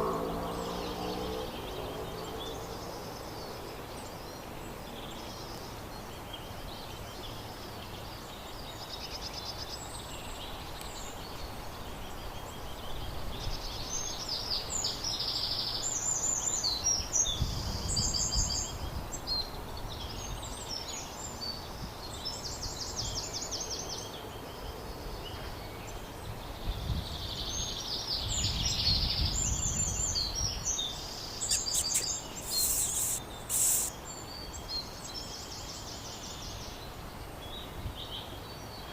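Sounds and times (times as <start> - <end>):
small birds chirping and trilling: 0.0 - 38.9
short sharp noises: 31.5 - 33.9.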